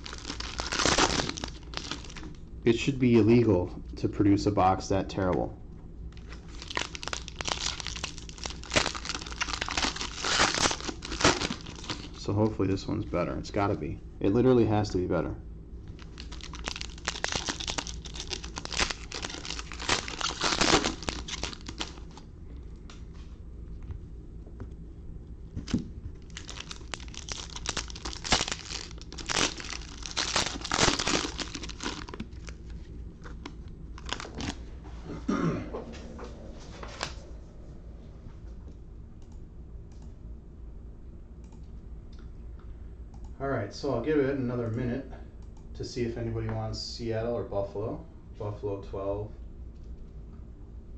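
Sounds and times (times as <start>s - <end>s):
plastic wrapping crinkling: 0.0s - 2.4s, 6.2s - 12.3s, 15.9s - 22.2s, 25.6s - 34.6s.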